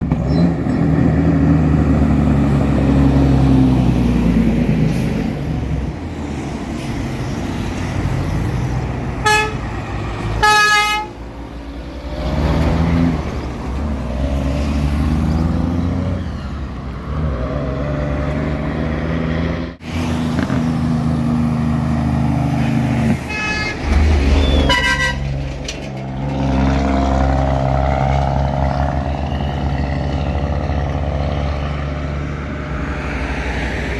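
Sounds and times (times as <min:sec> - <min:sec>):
short horn blasts: 0:09.2 - 0:09.7, 0:10.4 - 0:11.2, 0:23.2 - 0:24.0, 0:24.6 - 0:25.3.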